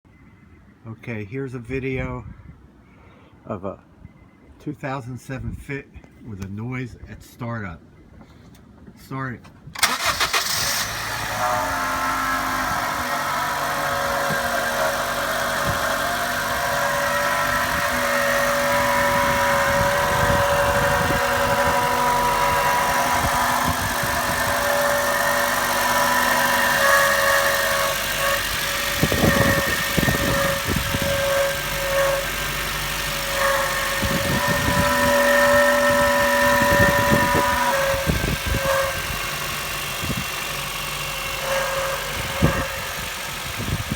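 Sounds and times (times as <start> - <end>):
car engine idling: 9.8 - 43.9
steady tone: 11.3 - 40.5.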